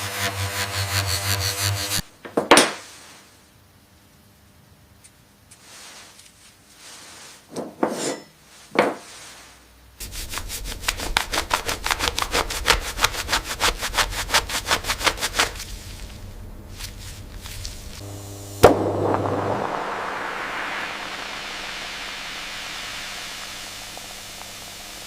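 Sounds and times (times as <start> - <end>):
hand rubbing silverware: 5.5 - 15.8.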